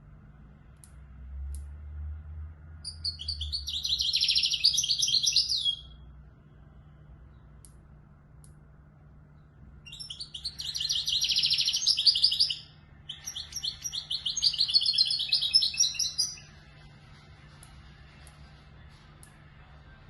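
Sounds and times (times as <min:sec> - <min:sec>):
goldfinch trilling song: 0:02.8 - 0:06.0, 0:09.8 - 0:16.6.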